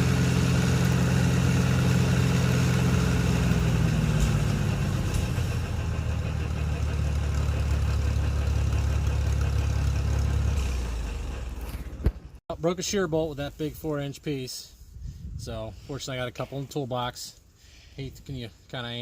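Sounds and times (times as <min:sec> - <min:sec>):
tractor engine running: 0:00.0 - 0:12.4
wood chipper running: 0:00.0 - 0:12.4.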